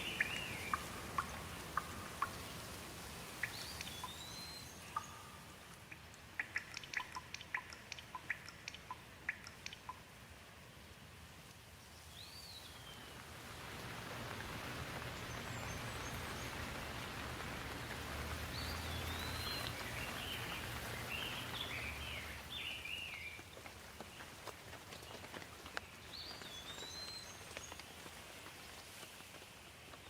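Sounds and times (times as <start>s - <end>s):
bird chirping: 0.0s - 10.0s, 14.9s - 23.6s, 25.8s - 27.9s
rain falling: 0.0s - 30.0s.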